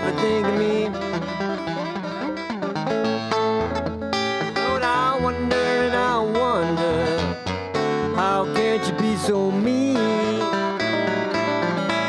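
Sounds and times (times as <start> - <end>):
lead guitar bending notes: 0.0 - 12.0
plucked guitar: 0.0 - 12.0
bass line: 2.6 - 10.6.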